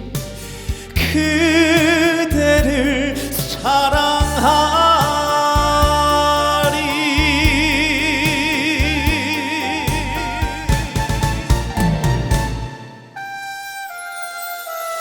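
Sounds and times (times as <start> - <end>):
drum hits: 0.0 - 2.8, 3.4 - 13.0
live band playing: 0.0 - 15.0
man singing with vibrato: 0.1 - 11.1.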